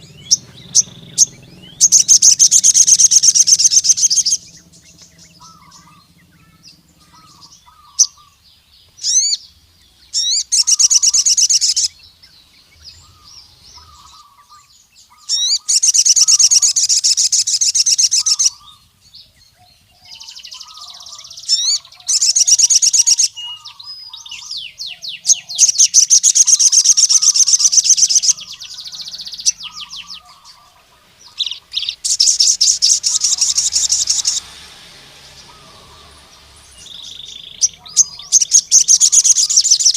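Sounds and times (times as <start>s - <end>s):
bird singing high trills: 0.0s - 39.9s
faint lower chirping: 0.0s - 39.9s
short sharp bird notes: 0.0s - 39.9s.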